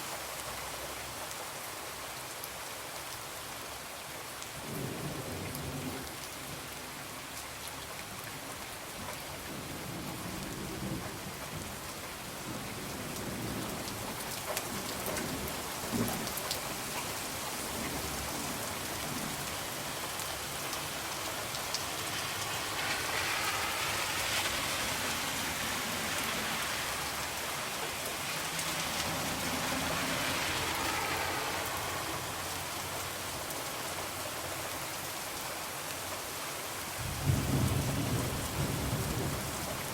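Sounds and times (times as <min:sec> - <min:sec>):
rain on a window: 0:00.0 - 0:39.9
thunder rumbling: 0:37.0 - 0:39.9.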